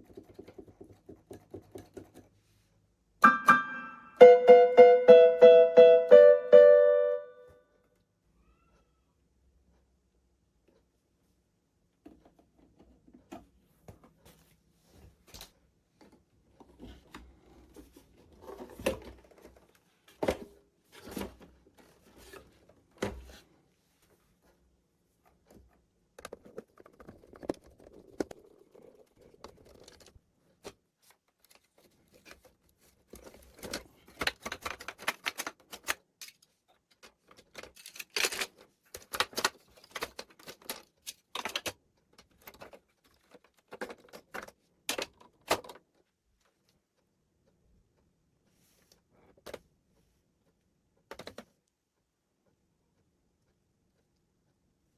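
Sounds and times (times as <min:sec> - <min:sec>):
hard parts clicking and scraping: 0:31.4 - 0:45.8.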